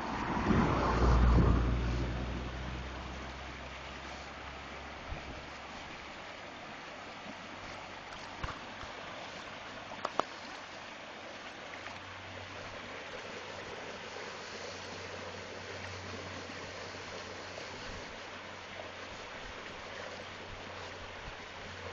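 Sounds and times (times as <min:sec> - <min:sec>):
river water rushing: 0:00.0 - 0:21.9.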